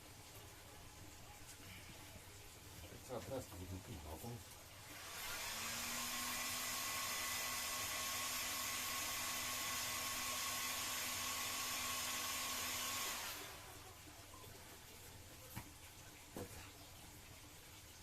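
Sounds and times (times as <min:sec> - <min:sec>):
heat gun blowing air: 0:04.9 - 0:13.7.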